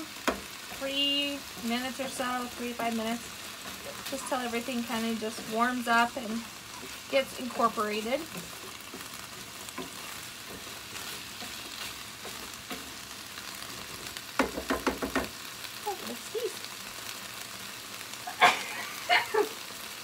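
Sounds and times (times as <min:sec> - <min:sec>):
stirring knocks and scrapes in pan: 0:00.0 - 0:15.5
vegetables sizzling in oil: 0:00.0 - 0:20.0.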